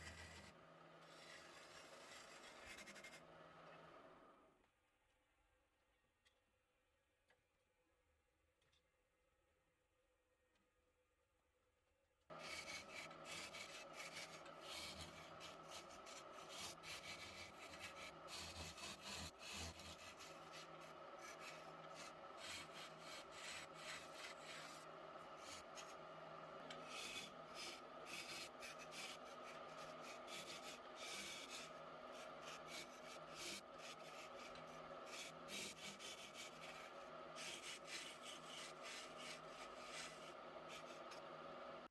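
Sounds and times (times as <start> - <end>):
wood lathe humming: 12.4 - 41.7
scratchy wood turning noise: 29.6 - 41.2.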